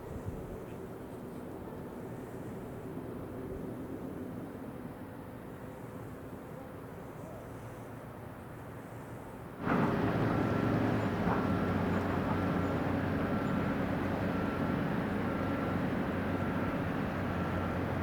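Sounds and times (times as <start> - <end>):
diesel engine drone: 9.6 - 18.0.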